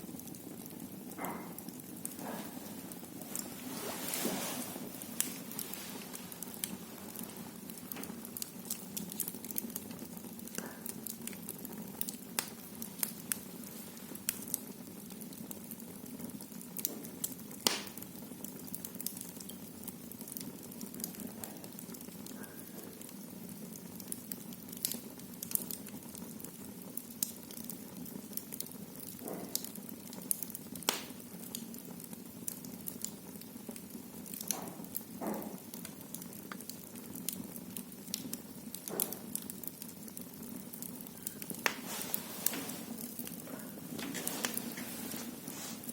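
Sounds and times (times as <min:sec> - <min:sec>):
fire crackling and popping: 0:00.0 - 0:45.9
fire flames rushing: 0:00.1 - 0:15.1, 0:40.8 - 0:45.9.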